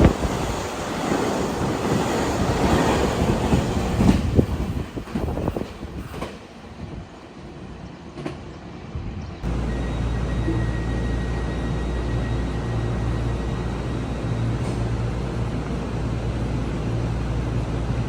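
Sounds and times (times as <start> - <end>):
train wheels clacking over rails: 0.0 - 6.6.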